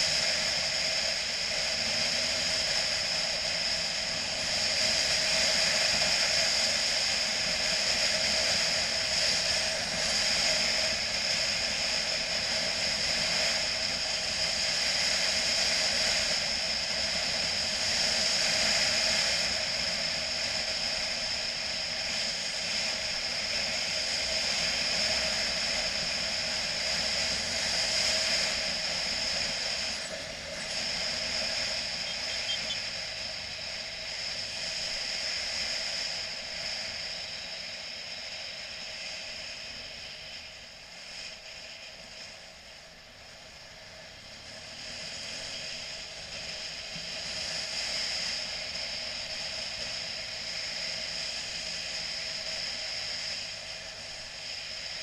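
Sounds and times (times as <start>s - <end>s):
wind and road noise: 0.0s - 55.0s
motorcycle engine running: 29.8s - 33.3s.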